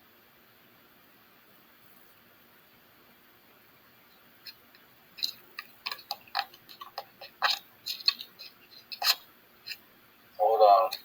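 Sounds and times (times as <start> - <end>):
light sharp clicks and taps: 4.4 - 9.8.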